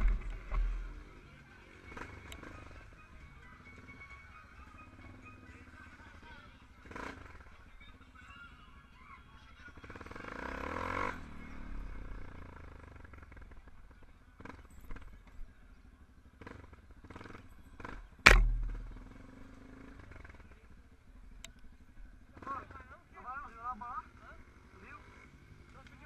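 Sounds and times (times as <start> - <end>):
motorcycle engine: 0.0 - 26.0
clicks and knocks: 18.3 - 19.0
loud sharp ringing bang: 18.3 - 19.2.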